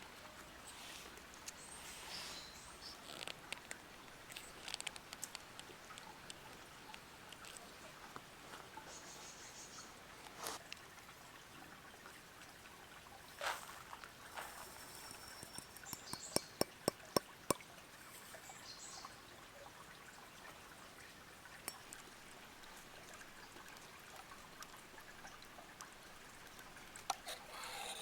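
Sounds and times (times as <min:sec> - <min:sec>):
water trickling: 0:00.1 - 0:28.0
light sharp ticks: 0:02.8 - 0:08.3.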